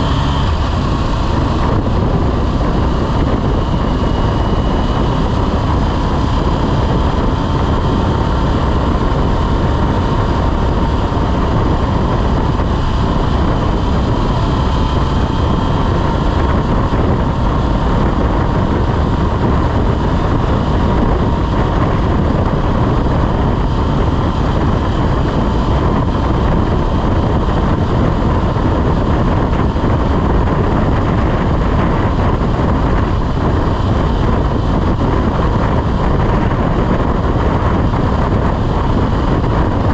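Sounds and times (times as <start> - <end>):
faint steady whine: 0.0 - 39.9
motorcycle engine and road noise: 0.0 - 39.9
wind rushing over microphone: 0.0 - 39.9.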